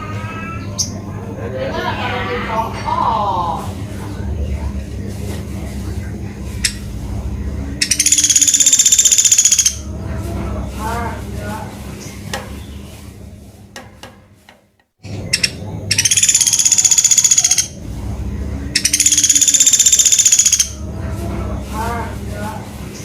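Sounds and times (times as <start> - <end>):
low hum: 0.0 - 14.1, 15.0 - 23.0
bird rattling high trills: 7.8 - 9.8, 15.3 - 17.8, 18.8 - 20.8.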